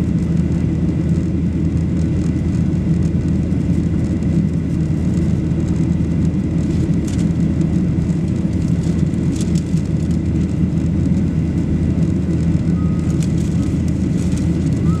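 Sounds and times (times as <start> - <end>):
jet airliner engines rumbling: 0.0 - 15.0
faint high tone: 12.7 - 13.2.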